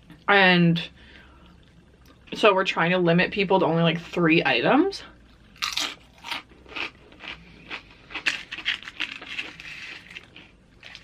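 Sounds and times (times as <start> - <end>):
crunchy chips chewing: 5.3 - 11.0.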